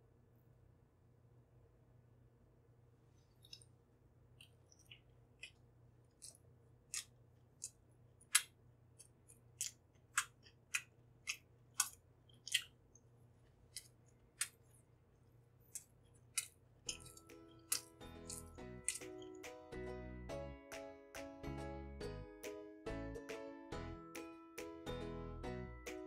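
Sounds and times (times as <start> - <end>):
crisp chewing crunches: 3.3 - 3.7, 4.4 - 13.0, 13.6 - 14.8, 15.6 - 19.5.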